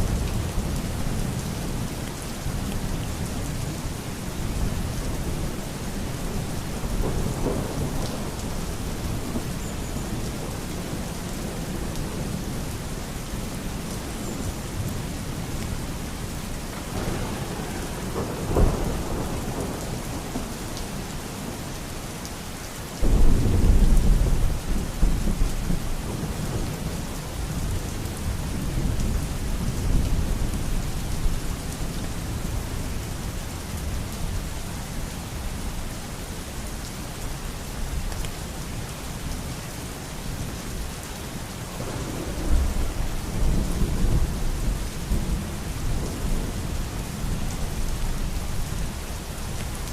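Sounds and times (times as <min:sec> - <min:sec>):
steady rain: 0:00.0 - 0:49.9
rolling thunder: 0:16.9 - 0:20.6, 0:41.7 - 0:47.4.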